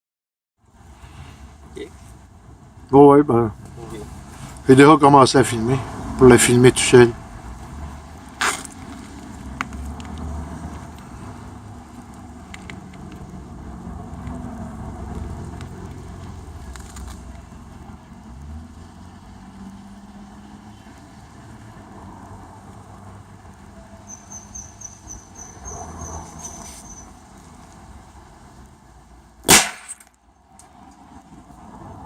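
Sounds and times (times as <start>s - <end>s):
handling noise: 8.3s - 10.2s
sharp bang: 29.5s - 30.1s.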